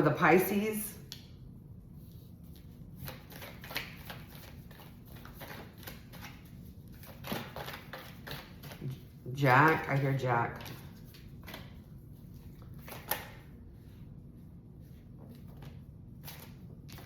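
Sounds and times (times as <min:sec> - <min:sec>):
cards being shuffled: 0:02.5 - 0:09.0.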